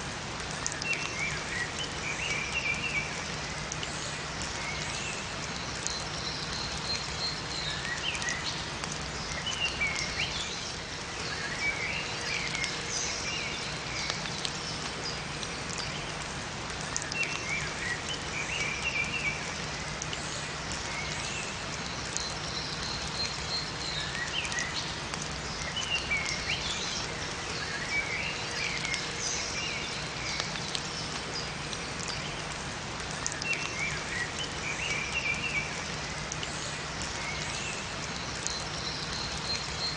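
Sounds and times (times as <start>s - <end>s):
steady rain in a forest: 0.0s - 39.9s
songbirds chirping: 0.4s - 39.9s.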